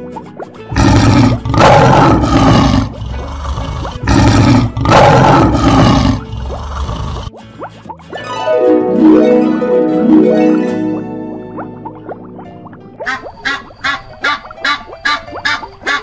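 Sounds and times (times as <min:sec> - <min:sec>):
lion roaring: 0:00.7 - 0:07.3.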